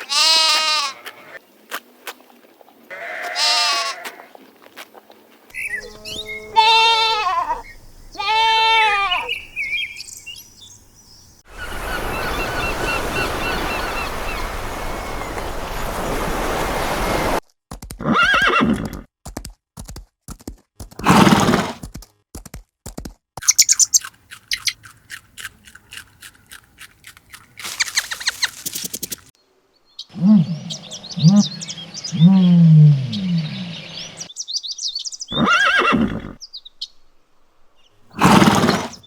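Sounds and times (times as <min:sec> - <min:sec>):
horse whinnying: 0:18.0 - 0:19.1, 0:21.0 - 0:21.8, 0:35.3 - 0:36.4, 0:38.2 - 0:39.0
quick clicks: 0:21.8 - 0:29.3.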